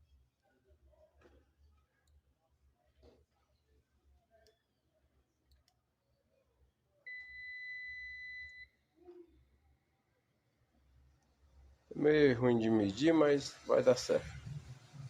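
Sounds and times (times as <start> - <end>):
multimeter beep: 7.1 - 8.7.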